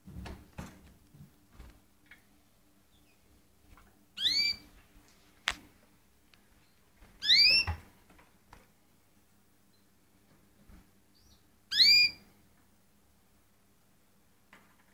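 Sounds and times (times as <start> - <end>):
canary calls: 4.2 - 4.7, 7.2 - 7.7, 11.2 - 12.2.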